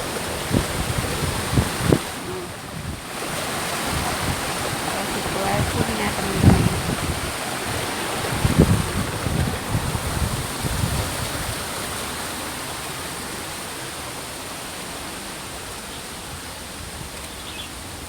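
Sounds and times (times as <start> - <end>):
wind rumble on microphone: 0.0 - 12.2
water rushing: 0.0 - 18.0.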